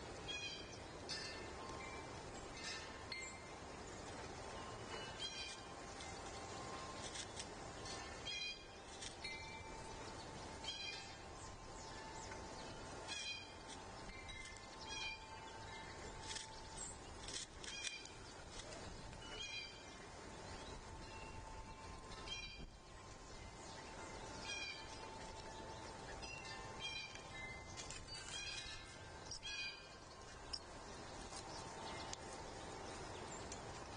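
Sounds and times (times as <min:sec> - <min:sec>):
faint background tones and hiss: 0:00.0 - 0:33.9
bird calling: 0:08.3 - 0:19.9.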